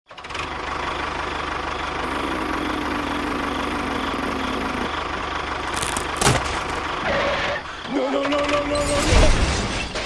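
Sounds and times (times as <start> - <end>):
small engine idling: 0.1 - 7.9.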